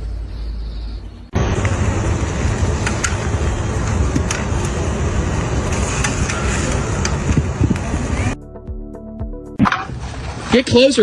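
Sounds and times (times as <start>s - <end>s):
machinery rumbling: 0.0s - 8.4s.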